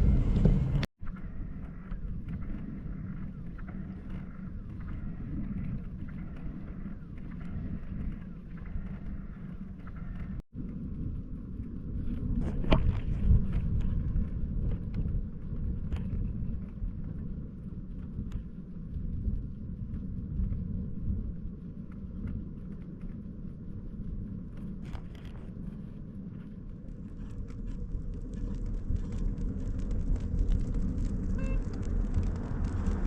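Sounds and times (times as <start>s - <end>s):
road noise: 0.0s - 0.9s, 29.3s - 33.0s
wind on microphone: 0.0s - 33.0s.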